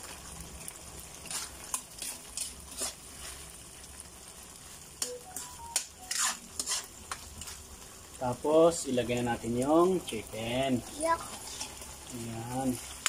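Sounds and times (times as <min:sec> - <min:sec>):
sauce sizzling in a wok: 0:00.0 - 0:13.0
spatula scraping and knocking pan: 0:01.2 - 0:03.3, 0:05.0 - 0:07.6.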